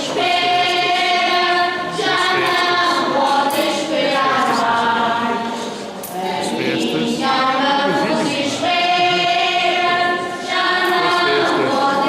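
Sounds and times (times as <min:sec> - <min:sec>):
choir singing a hymn: 0:00.0 - 0:12.0.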